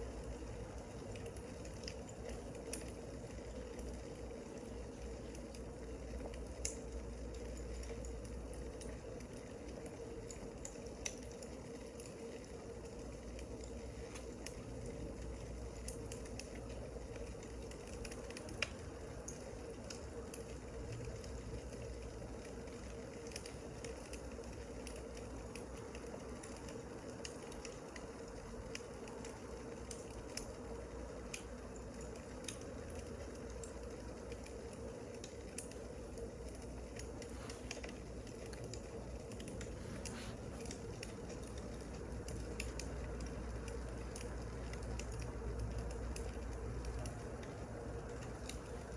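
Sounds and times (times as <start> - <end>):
wood fire crackling: 0.0 - 48.9
steady low rumble: 35.7 - 48.9.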